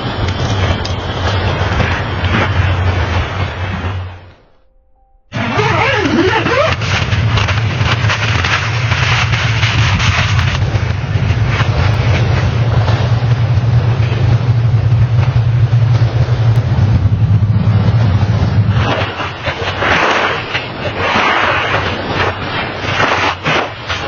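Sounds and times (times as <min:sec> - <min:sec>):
engine low drone: 0:00.0 - 0:24.0
loud rushing noise: 0:05.3 - 0:24.0.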